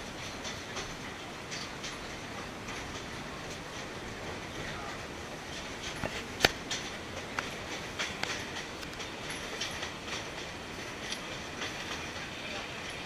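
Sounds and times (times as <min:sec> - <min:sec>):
train carriage running noise: 0:00.0 - 0:13.0
carriage rattling: 0:00.2 - 0:13.0
wheel clicks and knocks: 0:05.5 - 0:13.0.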